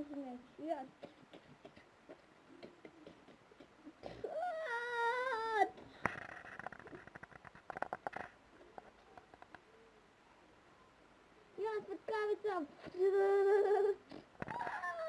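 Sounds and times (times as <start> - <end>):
child making whining voice effect: 4.2 - 5.8, 12.9 - 15.0.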